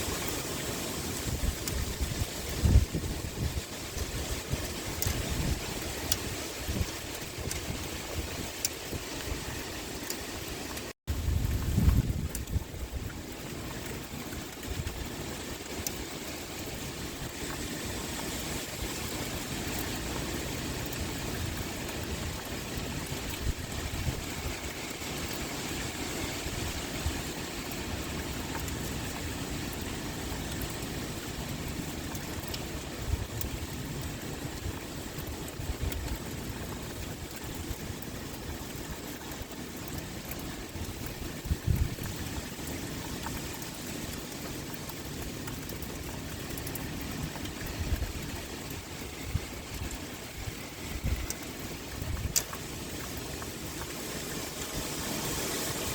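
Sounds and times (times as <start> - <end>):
pouring rain: 0.0 - 55.9
wind: 0.0 - 55.9.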